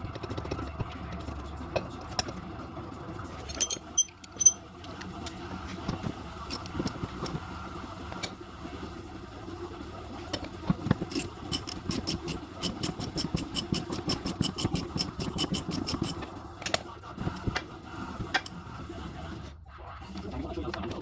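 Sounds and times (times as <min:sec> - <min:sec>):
metal tools knocking: 0:03.4 - 0:05.4, 0:10.9 - 0:16.2
ratchet wrench clicking: 0:11.1 - 0:16.2.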